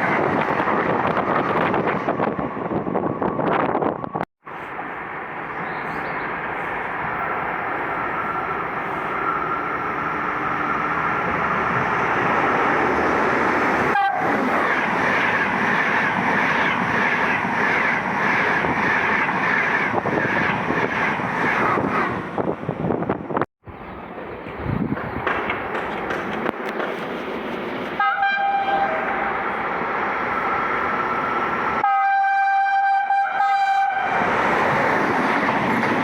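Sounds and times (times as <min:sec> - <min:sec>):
train wheels clattering: 0:24.9 - 0:27.6.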